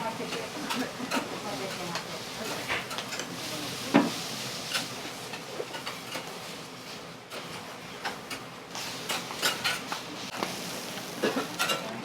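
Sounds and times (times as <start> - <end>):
griddle sizzling: 0.0 - 12.0.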